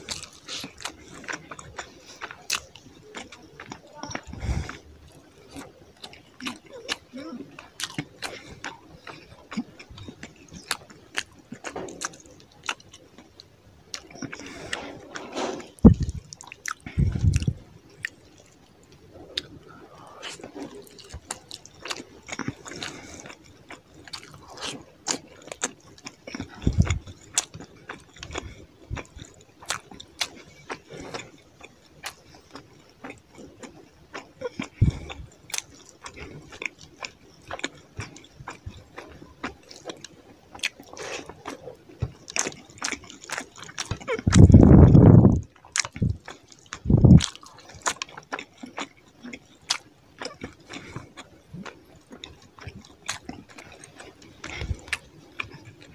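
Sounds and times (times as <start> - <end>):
wet chewing: 0.0 - 55.9
dull low thumps: 15.8 - 16.3, 16.9 - 17.6, 44.2 - 45.4, 46.8 - 47.3
fingers squishing food: 20.2 - 55.9.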